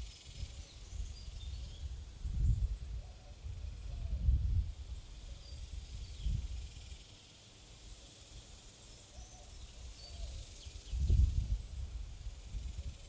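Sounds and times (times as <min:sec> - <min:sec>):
songbirds chirping: 0:00.0 - 0:04.3, 0:04.9 - 0:13.0
wind buffeting microphone: 0:00.0 - 0:04.9, 0:10.8 - 0:13.0.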